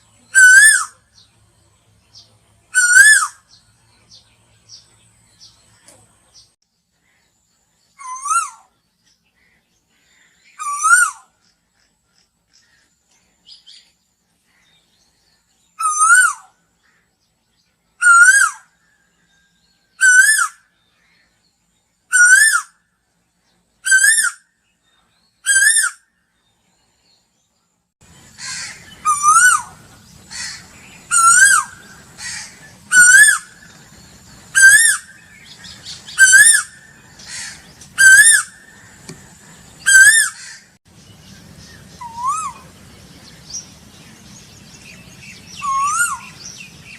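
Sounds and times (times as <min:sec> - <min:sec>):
background hum: 0:00.0 - 0:46.9
bird calling repeated rising notes: 0:00.2 - 0:01.3, 0:02.7 - 0:03.6, 0:10.2 - 0:11.4, 0:15.8 - 0:16.6, 0:18.0 - 0:18.9, 0:25.3 - 0:26.1, 0:28.2 - 0:46.9.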